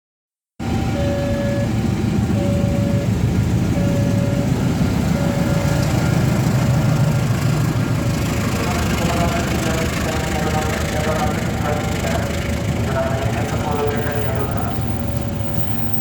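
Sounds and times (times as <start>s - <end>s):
train diesel engine rumble: 0.6s - 16.0s
repeating beep: 2.4s - 3.1s, 3.8s - 4.6s, 5.2s - 5.8s, 13.9s - 16.0s.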